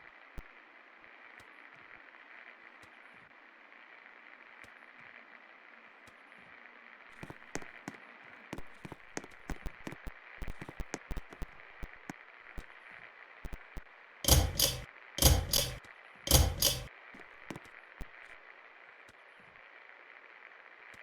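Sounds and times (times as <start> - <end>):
loud double clacks: 14.3 - 16.9
pull chain rattling: 14.3 - 16.9.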